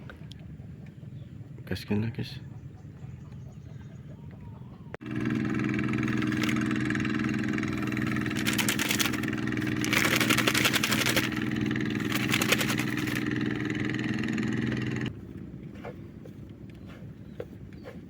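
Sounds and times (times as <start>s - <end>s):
small engine idling: 2.6s - 15.2s.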